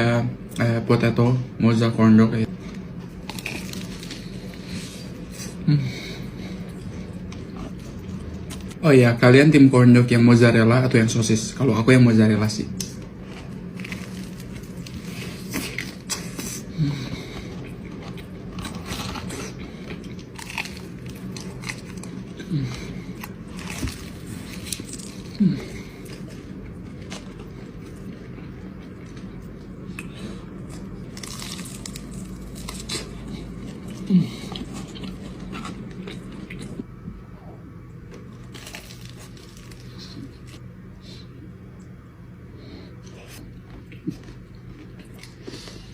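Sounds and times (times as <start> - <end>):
low steady hum: 0.0 - 45.9
crunchy bites and chewing: 3.2 - 5.6, 12.8 - 36.9, 38.0 - 40.6.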